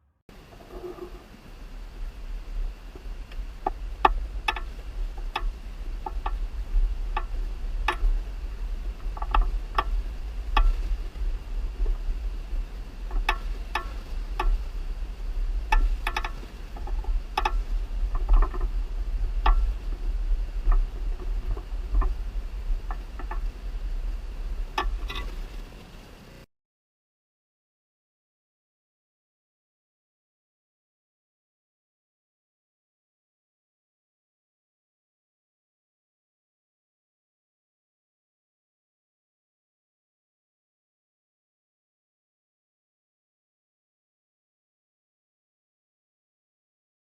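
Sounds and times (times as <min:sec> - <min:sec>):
faint high whine: 0:00.0 - 0:26.5.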